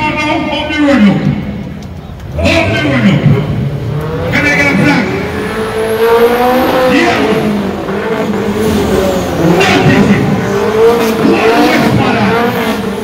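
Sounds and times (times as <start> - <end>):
car engine revving hard: 3.5 - 13.0.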